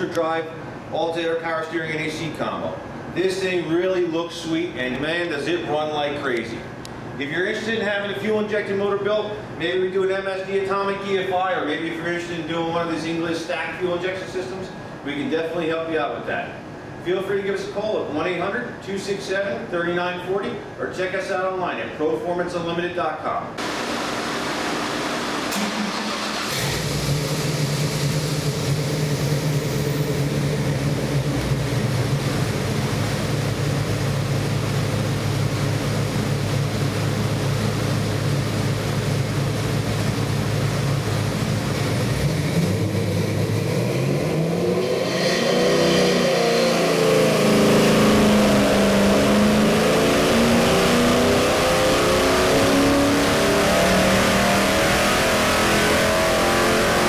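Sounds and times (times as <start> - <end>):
car engine idling and revving: 23.6 - 57.0.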